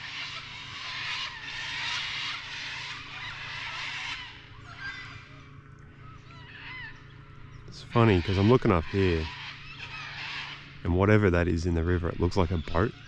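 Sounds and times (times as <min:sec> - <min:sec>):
faint bird calls: 0:00.0 - 0:13.0.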